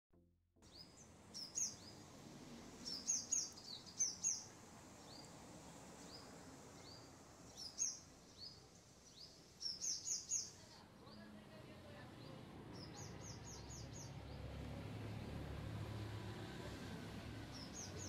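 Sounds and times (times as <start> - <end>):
small bird chirping: 0.6 - 2.1, 2.8 - 5.4, 6.0 - 11.3, 12.2 - 14.4, 17.5 - 18.0
faint background hiss: 0.7 - 13.5.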